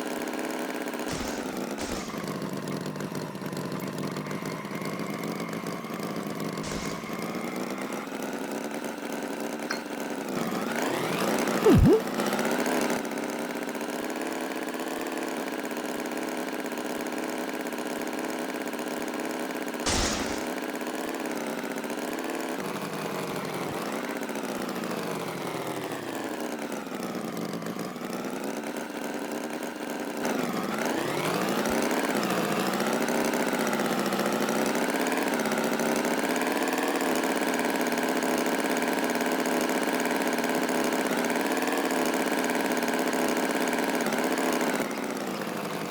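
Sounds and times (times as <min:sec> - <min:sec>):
brief click: 0:11.7 - 0:12.0, 0:19.9 - 0:20.5.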